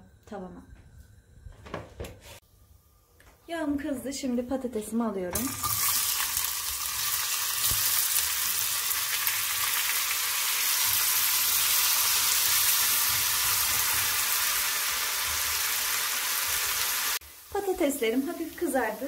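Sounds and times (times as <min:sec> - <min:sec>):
potatoes sizzling in hot oil: 0:05.4 - 0:19.0.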